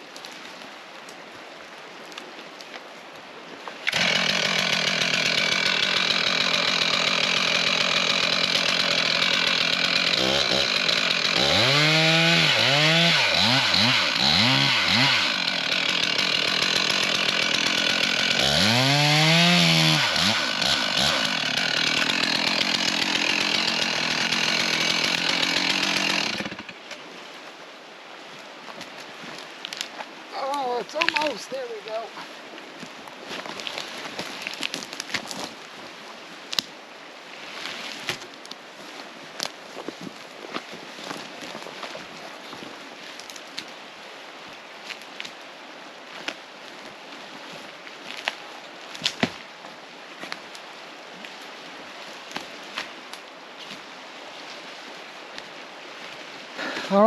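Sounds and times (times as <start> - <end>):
chainsaw cutting wood: 3.8 - 26.9, 56.6 - 57.0.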